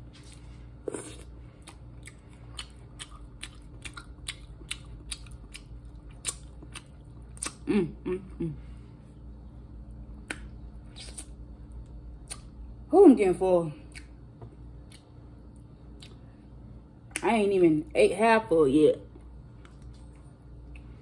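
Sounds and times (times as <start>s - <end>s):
chewing mouth sounds: 0.9s - 7.7s
person humming: 7.6s - 8.7s.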